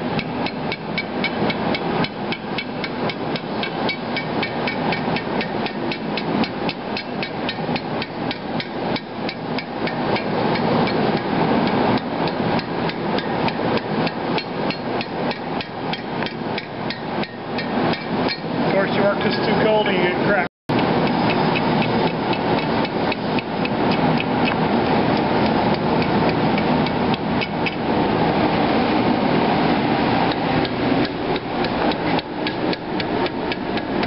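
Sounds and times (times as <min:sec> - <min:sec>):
steady rushing noise: 0:01.3 - 0:34.0.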